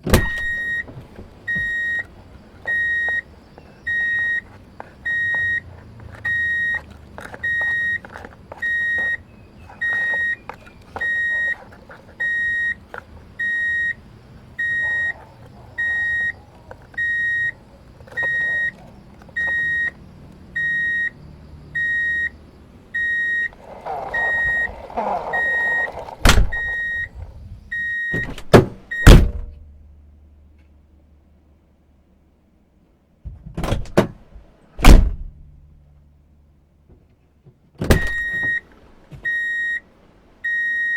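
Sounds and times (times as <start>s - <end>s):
reversing alarm beeps: 0.3s - 0.9s, 1.5s - 2.1s, 2.7s - 6.8s, 7.4s - 11.6s, 12.2s - 12.8s, 13.4s - 14.0s, 14.6s - 16.4s, 17.0s - 18.8s, 19.4s - 20.0s, 20.6s - 22.4s, 23.0s - 28.3s, 38.1s - 38.6s, 39.2s - 39.8s, 40.4s - 40.9s
rushing scraping noise: 23.5s - 27.3s.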